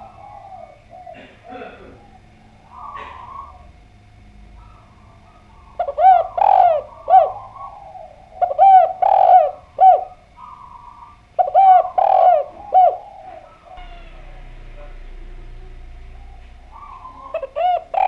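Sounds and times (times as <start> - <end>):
dove cooing: 0.0 - 18.0.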